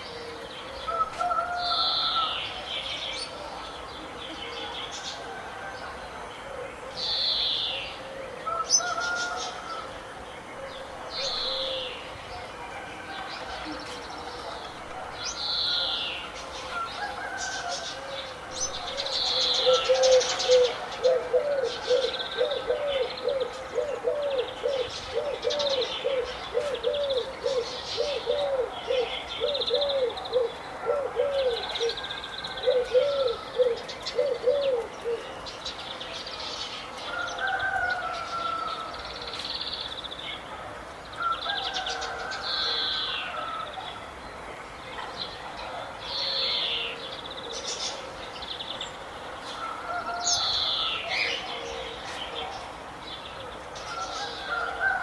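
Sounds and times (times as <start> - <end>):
birds chirping and singing: 0.0 - 55.0.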